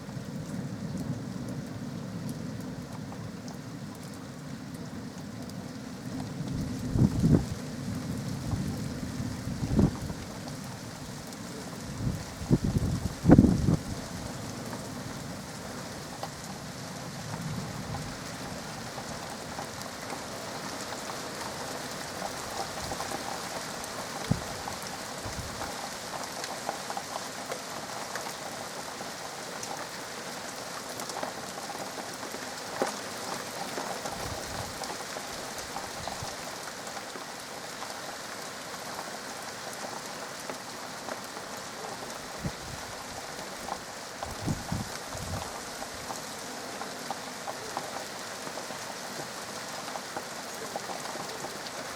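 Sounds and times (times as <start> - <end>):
steady rain falling: 0.0 - 51.9
sharp raindrop taps: 17.2 - 27.6.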